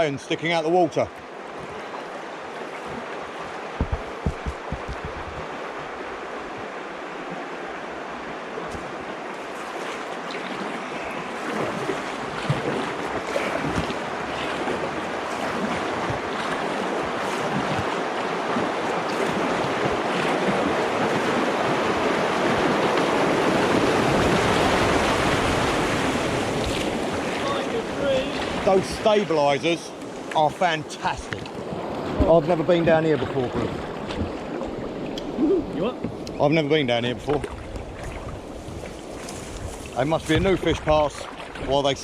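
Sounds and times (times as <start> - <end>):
rushing river water: 0.0 - 42.0
sharp knocks: 3.8 - 5.5.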